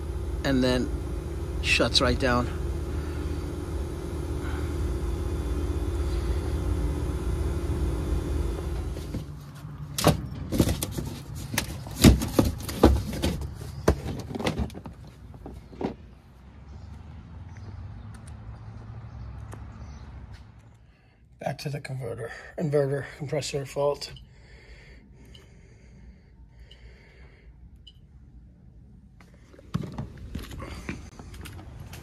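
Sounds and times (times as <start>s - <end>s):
heat pump unit humming: 0.0s - 9.4s.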